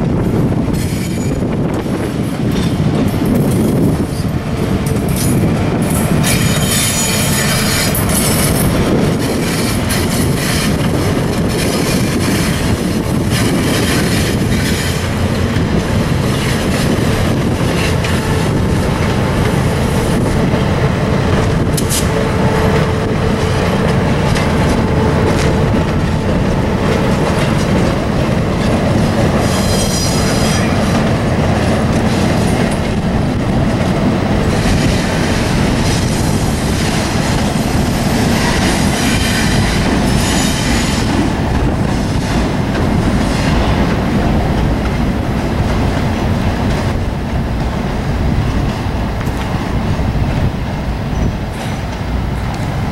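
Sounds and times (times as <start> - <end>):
locomotives rumbling over bridge: 0.0 - 52.9
high-pitched wheel squeal: 6.2 - 8.6, 29.4 - 30.8.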